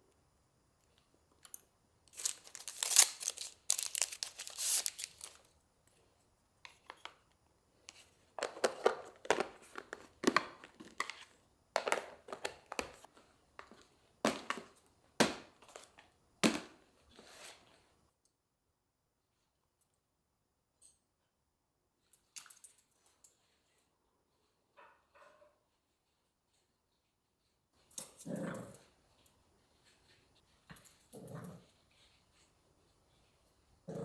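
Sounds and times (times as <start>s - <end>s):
packaging crinkling and tearing: 2.1s - 5.5s.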